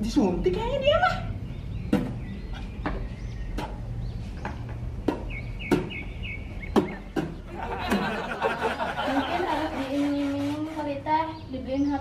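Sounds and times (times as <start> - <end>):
birds chirping faintly: 0.0 - 12.0
sharp irregular knocks: 4.4 - 6.0.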